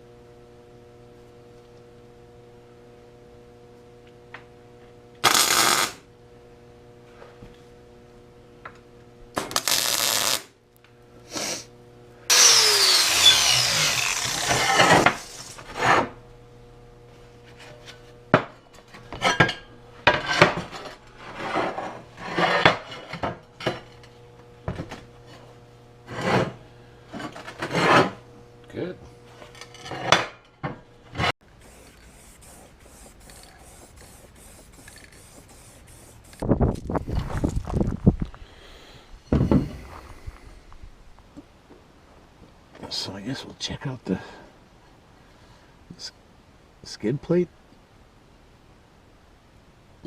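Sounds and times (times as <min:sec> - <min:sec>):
power tool on steel plate: 0:05.2 - 0:06.1, 0:09.4 - 0:10.5, 0:12.3 - 0:16.3, 0:17.0 - 0:28.3, 0:31.1 - 0:36.4
hand file rasping on metal: 0:31.6 - 0:36.4.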